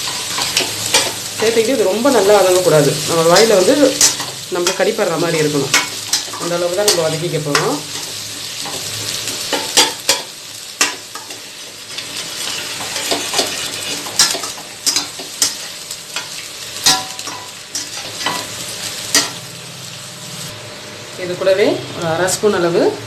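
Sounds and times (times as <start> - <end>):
food sizzling in hot oil: 0.0 - 23.0
ladle scraping a pan: 11.2 - 15.8.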